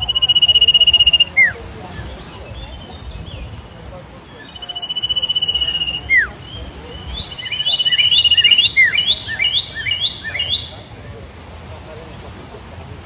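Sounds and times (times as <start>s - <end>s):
falling bird whistle: 0.0s - 1.6s, 4.4s - 6.4s, 7.1s - 10.8s
rising bird chirps: 0.0s - 3.6s, 4.3s - 10.9s
bird trill: 0.0s - 10.9s
lower bird chirps: 0.0s - 11.0s.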